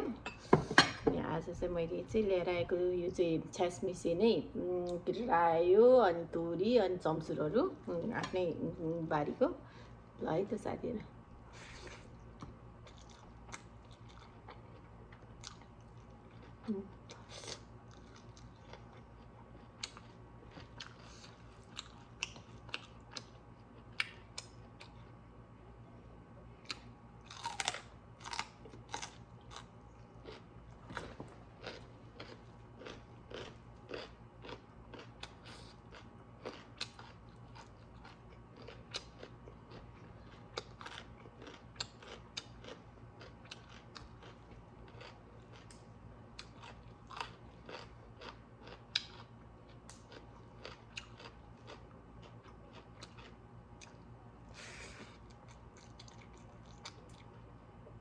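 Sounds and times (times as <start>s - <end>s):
person chewing and crunching: 11.9s - 25.2s, 26.6s - 54.1s, 54.9s - 57.6s.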